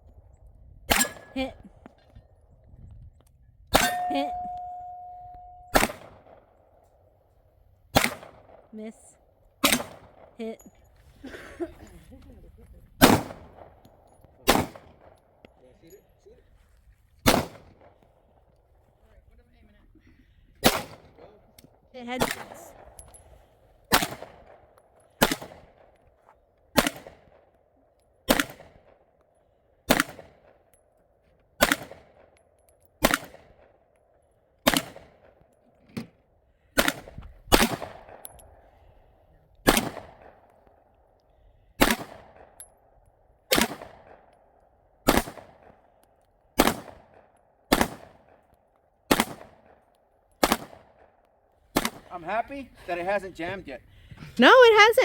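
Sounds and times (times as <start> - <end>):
gunshots with echo: 3.8 - 6.4.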